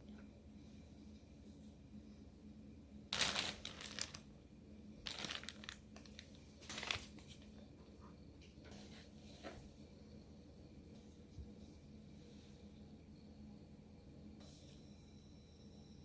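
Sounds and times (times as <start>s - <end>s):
crinkling when handled: 3.1s - 4.2s, 5.0s - 7.5s.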